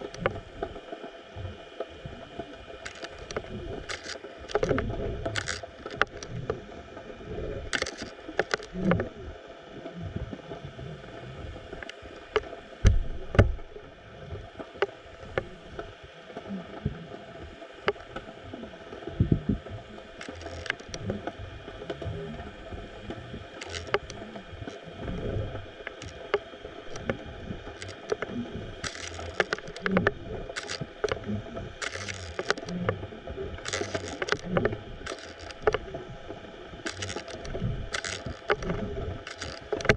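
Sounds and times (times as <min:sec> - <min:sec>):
underwater clicks and knocks: 0:00.0 - 0:00.8, 0:02.8 - 0:06.6, 0:07.7 - 0:09.2, 0:11.7 - 0:13.8, 0:19.2 - 0:22.1, 0:23.0 - 0:39.9
underwater humming tones: 0:00.0 - 0:39.9
underwater water noise: 0:00.0 - 0:39.9.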